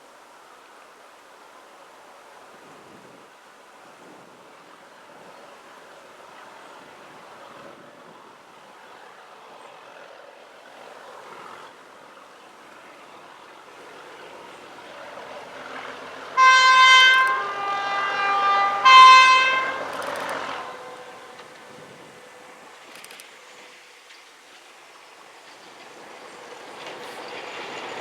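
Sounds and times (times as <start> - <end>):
approaching train noise: 3.6 - 28.0
locomotive two-tone horn: 16.3 - 22.5.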